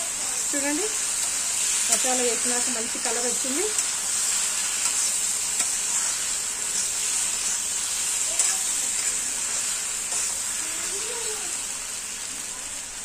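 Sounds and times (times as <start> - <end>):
chicken frying in oil: 0.0 - 13.0.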